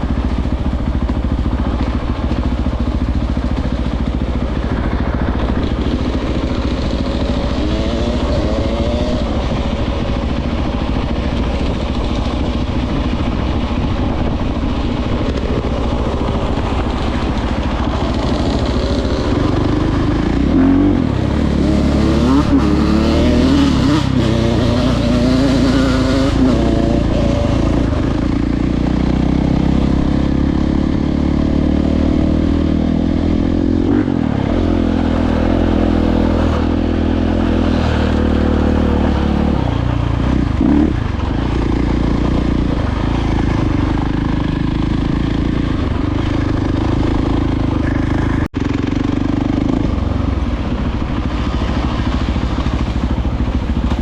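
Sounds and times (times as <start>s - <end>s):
dirt bike engine revving: 1.1s - 54.0s.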